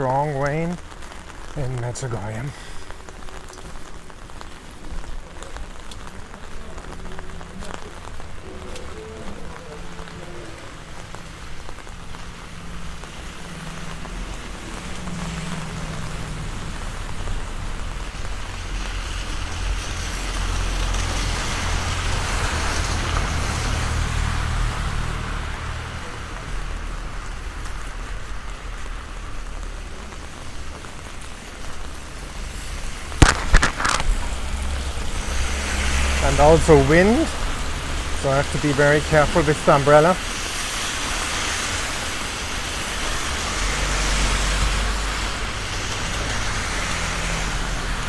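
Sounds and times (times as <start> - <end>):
heavy rain pouring: 0.0 - 48.0
sharp knocks: 33.2 - 34.3.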